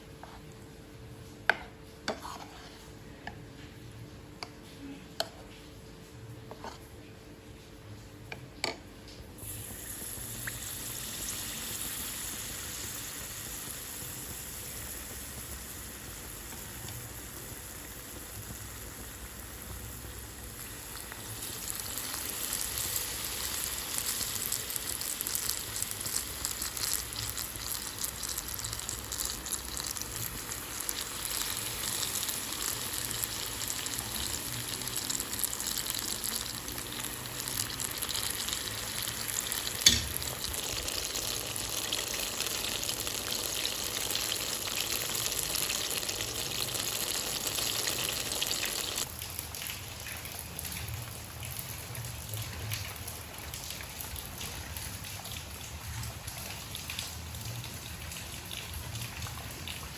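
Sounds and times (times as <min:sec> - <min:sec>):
food sizzling in hot oil: 0:09.4 - 0:49.1.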